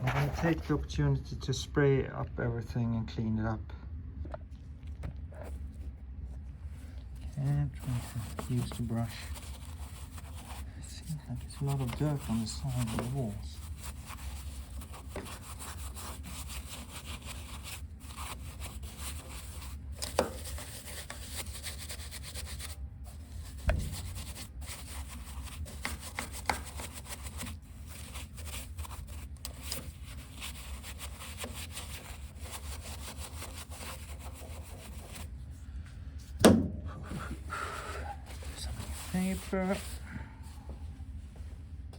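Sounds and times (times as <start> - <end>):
brush scrubbing metal tank: 7.3 - 35.4, 38.1 - 40.0
sharp knocks: 36.4 - 36.9.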